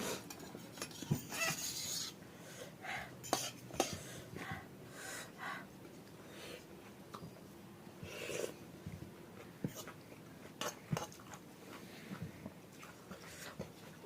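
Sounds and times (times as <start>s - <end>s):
breathing: 2.3s - 3.2s, 3.9s - 6.7s
soft chewing: 8.1s - 14.0s.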